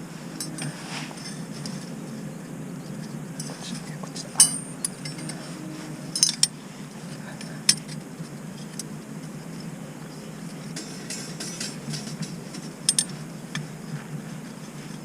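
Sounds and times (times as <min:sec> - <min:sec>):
low background hum: 0:00.0 - 0:15.0
light metallic clinks: 0:03.0 - 0:05.5, 0:06.1 - 0:13.7.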